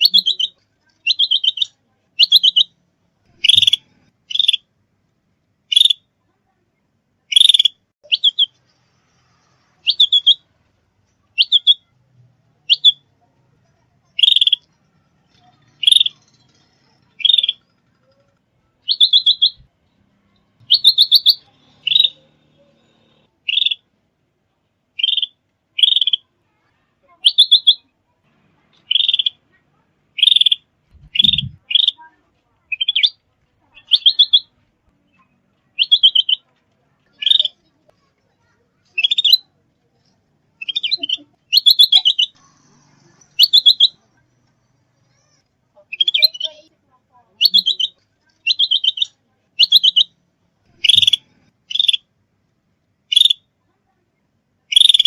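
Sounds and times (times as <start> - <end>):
songbird chirps: 0.0 - 4.8, 5.6 - 52.1, 52.8 - 53.7, 54.7 - 55.0.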